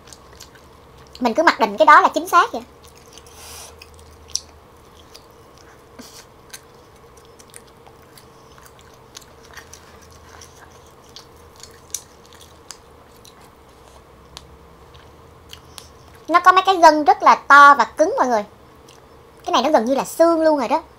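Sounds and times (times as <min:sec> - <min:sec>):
close-up chewing of meat: 0:00.0 - 0:16.3, 0:18.6 - 0:19.5
faint steady hum: 0:00.0 - 0:20.9
meat strands tearing: 0:02.7 - 0:14.0
soft wet mouth clicks and smacks: 0:02.8 - 0:05.8, 0:06.5 - 0:16.3.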